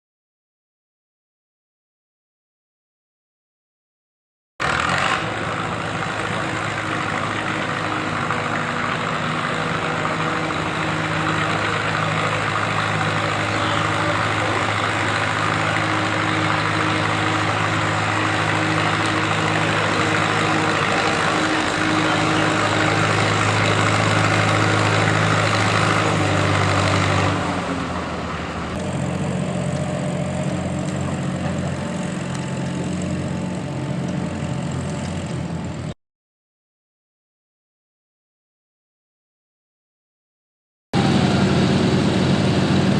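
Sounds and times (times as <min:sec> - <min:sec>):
tractor engine running: 0:04.6 - 0:36.0, 0:41.0 - 0:42.9.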